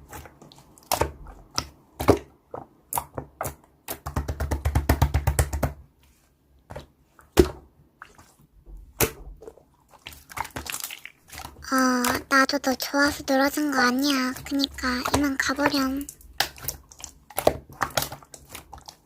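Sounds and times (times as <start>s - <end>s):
slime clicking and popping: 14.4s - 19.0s.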